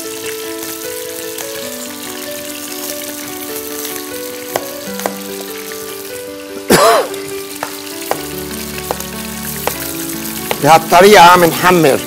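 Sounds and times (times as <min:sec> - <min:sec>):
chicken frying in hot oil: 0:00.0 - 0:12.0
knife tapping on cutting board: 0:04.5 - 0:05.2, 0:07.6 - 0:09.0, 0:09.6 - 0:09.9, 0:10.5 - 0:10.7.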